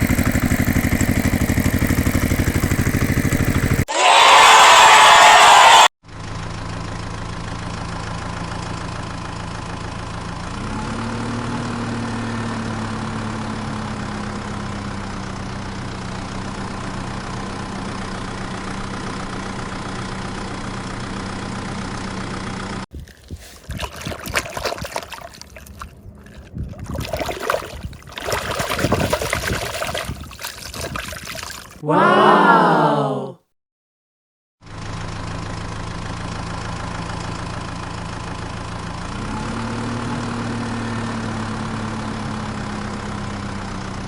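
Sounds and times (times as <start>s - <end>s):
engine idling: 0.0s - 3.9s, 6.1s - 10.7s, 13.0s - 22.8s, 34.7s - 39.1s.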